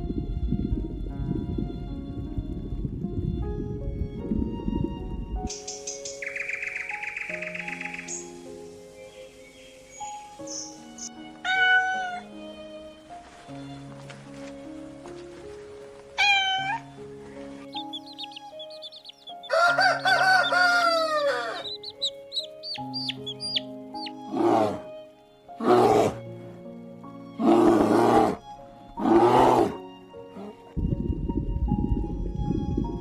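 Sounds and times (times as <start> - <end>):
background music: 0.0 - 33.0
high chirps: 17.7 - 19.6, 20.3 - 24.2
animal calls: 17.8 - 24.9, 25.6 - 26.2.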